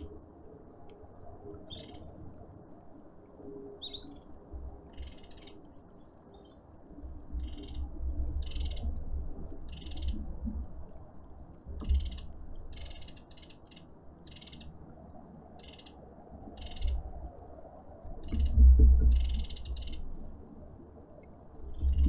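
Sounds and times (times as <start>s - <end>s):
low wind rumble: 0.0s - 22.0s
bird calling: 11.9s - 14.7s, 15.6s - 16.0s, 16.6s - 17.0s, 18.2s - 20.0s.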